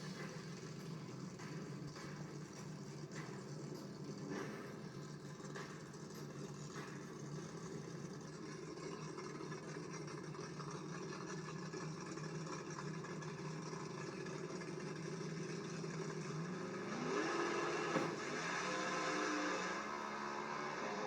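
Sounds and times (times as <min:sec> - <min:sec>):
race car engines running: 0:00.0 - 0:21.0
engine revving up: 0:16.7 - 0:21.0.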